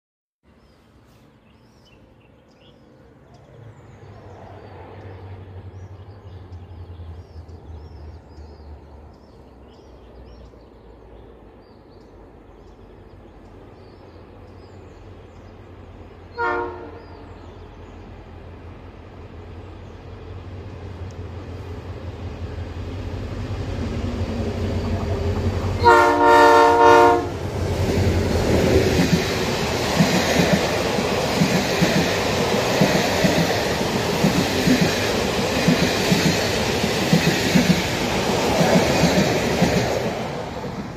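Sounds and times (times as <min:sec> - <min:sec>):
diesel locomotive engine drone: 0:00.8 - 0:40.9
train horn blast: 0:16.3 - 0:17.4, 0:25.8 - 0:27.4.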